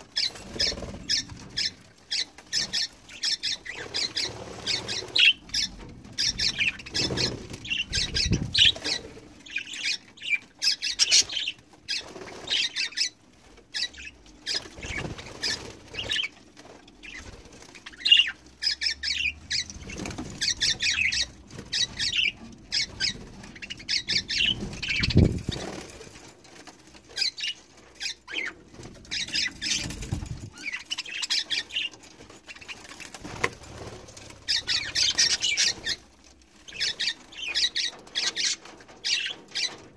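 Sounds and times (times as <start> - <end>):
budgerigars chirping: 0.0 - 16.4, 17.0 - 25.9, 27.2 - 32.8, 34.5 - 36.0, 36.7 - 39.8
wing flapping: 14.5 - 16.3, 19.8 - 27.3, 28.7 - 31.5.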